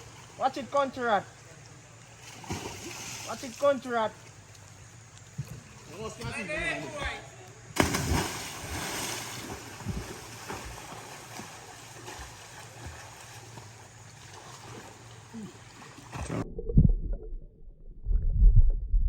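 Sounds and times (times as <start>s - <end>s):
loud splash: 2.4s - 3.4s, 7.8s - 13.0s
rushing river water: 7.8s - 16.4s
low muffled rumbling: 16.2s - 19.0s.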